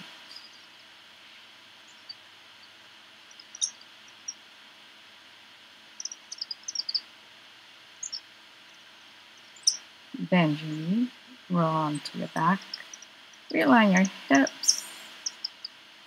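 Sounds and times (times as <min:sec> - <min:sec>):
small birds chirping: 0:00.0 - 0:00.9, 0:01.8 - 0:04.4, 0:06.0 - 0:07.1, 0:08.0 - 0:15.8
faint steady hiss: 0:00.0 - 0:16.0.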